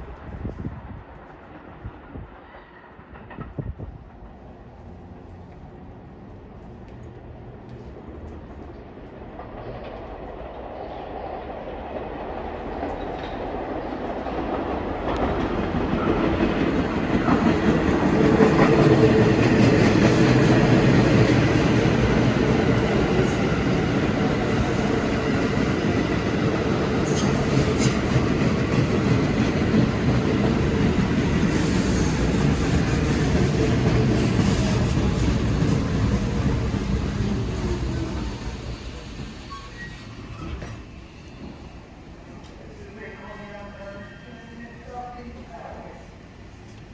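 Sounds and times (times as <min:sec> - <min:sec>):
subway train rail rumble: 0:00.0 - 0:46.9.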